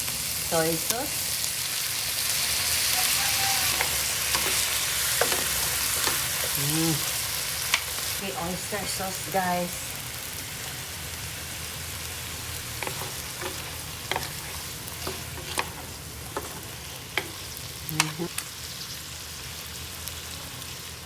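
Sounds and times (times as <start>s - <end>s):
chicken sizzling in a frying pan: 0.0s - 21.0s
utensil knocking and scraping pan: 3.7s - 6.3s, 12.8s - 17.4s.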